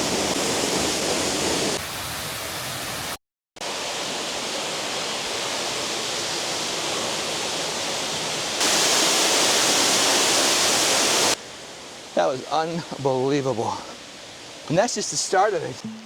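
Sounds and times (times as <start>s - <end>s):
waterfall rushing: 3.6s - 13.0s.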